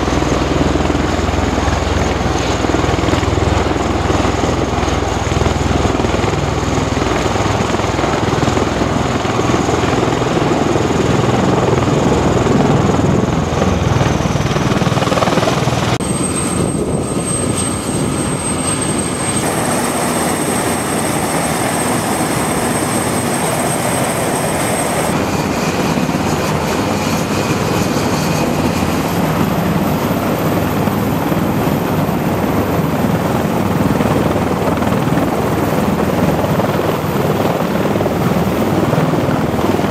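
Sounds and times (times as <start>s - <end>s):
helicopter rotor and turbine: 0.0s - 39.9s
thin high whine: 16.0s - 25.1s.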